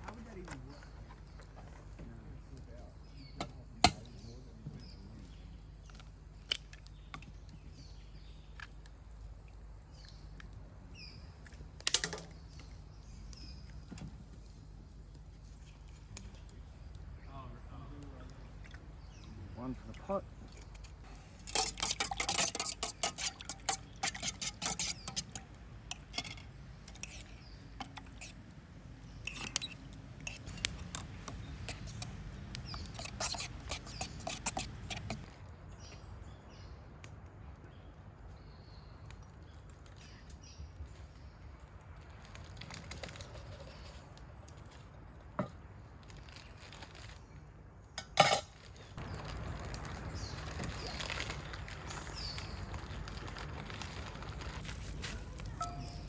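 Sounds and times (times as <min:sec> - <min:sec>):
utensil clinking in a bowl: 0:20.5 - 0:28.3.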